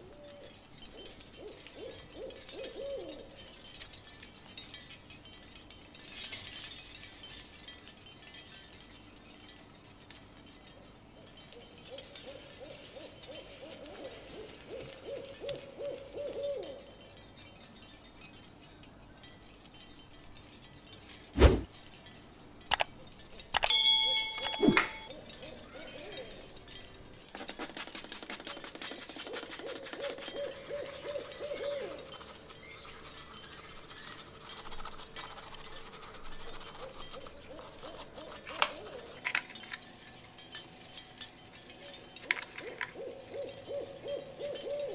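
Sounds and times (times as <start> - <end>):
faint wavering squeaks: 23.0 - 27.3, 30.0 - 44.9
brief metallic ring: 23.6 - 25.1.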